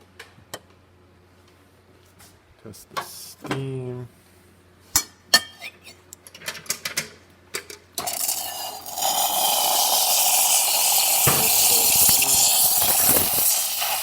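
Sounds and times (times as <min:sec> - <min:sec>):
espresso machine steam wand hissing: 0:08.0 - 0:14.0.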